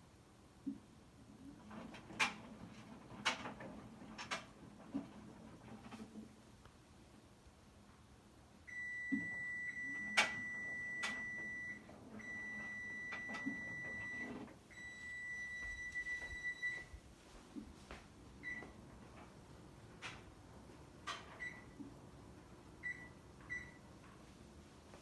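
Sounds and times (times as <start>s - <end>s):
washer beeping: 8.6s - 17.1s, 18.3s - 24.3s.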